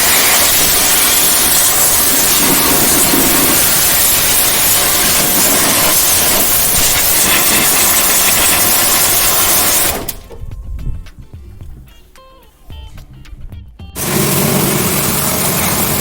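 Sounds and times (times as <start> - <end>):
pressure washer spraying water: 0.0 - 10.4, 14.0 - 16.0.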